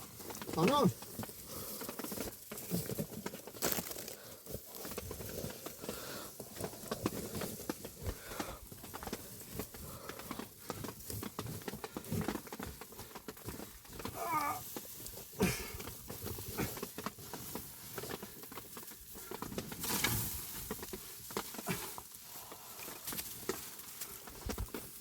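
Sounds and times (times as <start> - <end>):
crunching rustling and scraping: 0.0 - 25.0.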